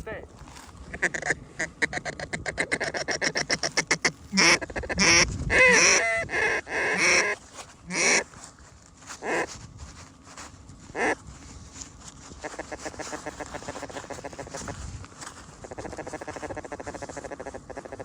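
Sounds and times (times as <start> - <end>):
goose clucking and honking: 0.9 - 8.3, 15.6 - 18.0.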